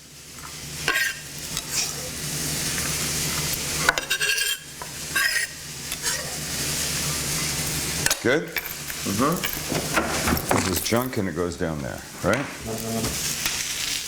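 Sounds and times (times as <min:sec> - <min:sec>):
food sizzling in a frying pan: 0:00.0 - 0:14.0
kitchen utensils scraping: 0:00.8 - 0:02.2, 0:03.3 - 0:14.0.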